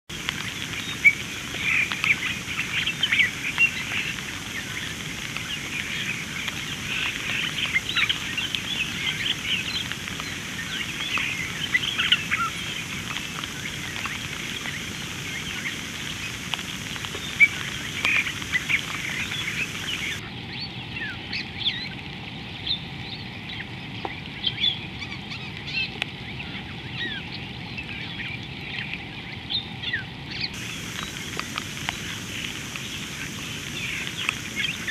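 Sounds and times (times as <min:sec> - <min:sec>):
steady high hiss: 0:00.1 - 0:20.2, 0:30.5 - 0:34.9.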